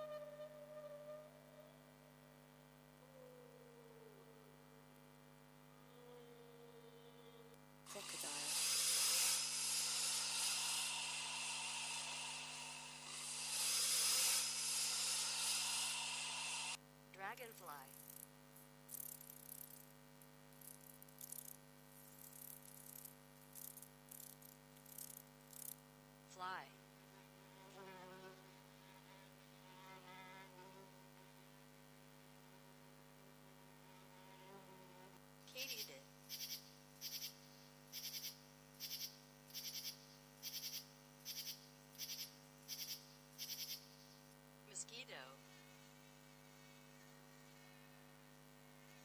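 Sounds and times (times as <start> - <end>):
electrical hum: 0.0 - 49.0
insect chirping in buzzy pulses: 0.0 - 49.0
dragonfly wings buzzing: 7.9 - 16.8, 17.5 - 18.3, 18.9 - 19.9, 20.5 - 25.8.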